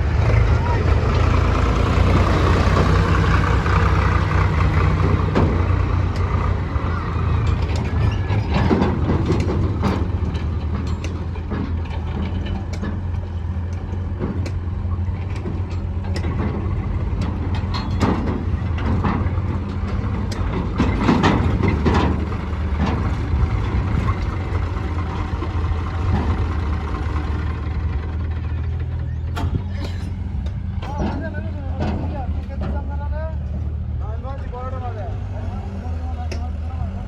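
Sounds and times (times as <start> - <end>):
diesel engines running: 0.0 - 37.0
bucket clanks and rattles: 17.2 - 26.6.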